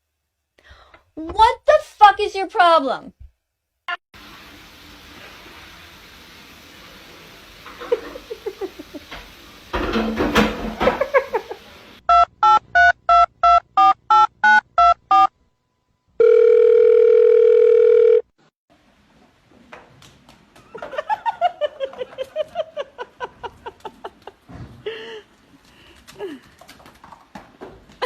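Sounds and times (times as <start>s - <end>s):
two-tone dialing beeps: 12.1s - 15.3s.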